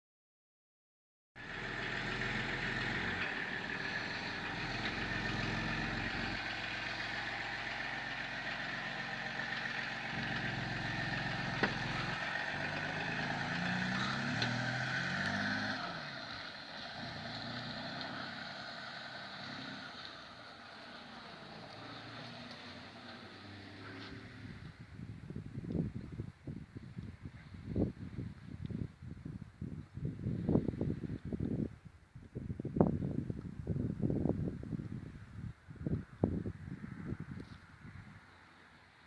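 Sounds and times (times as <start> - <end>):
vehicle engine running: 1.4 - 24.9.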